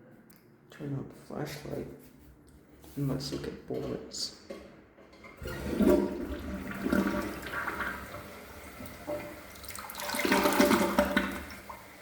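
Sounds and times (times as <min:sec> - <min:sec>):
toilet flushing: 0:03.3 - 0:12.0.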